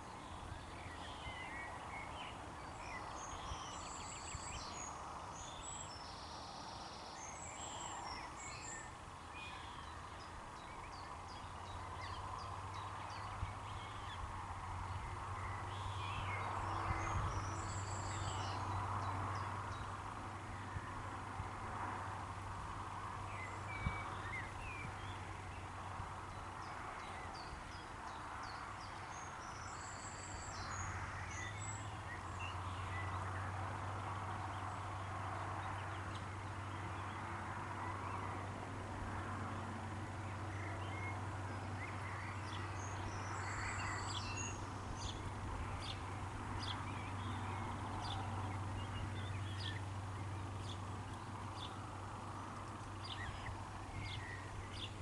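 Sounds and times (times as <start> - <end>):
bird song phrases: 0.0 - 21.3, 21.9 - 55.0
birds chirping: 0.0 - 21.3, 23.1 - 38.6, 40.0 - 55.0.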